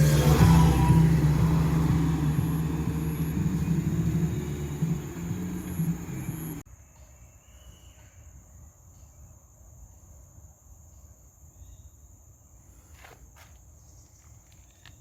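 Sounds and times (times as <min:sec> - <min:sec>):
high insect drone: 0:00.0 - 0:06.6
low sound: 0:00.0 - 0:06.6.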